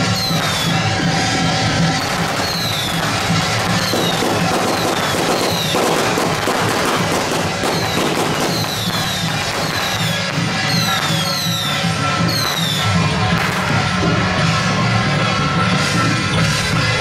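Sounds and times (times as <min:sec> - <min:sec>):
dance music with pulsing beat: 0:00.0 - 0:17.0
firecrackers crackling: 0:00.0 - 0:17.0.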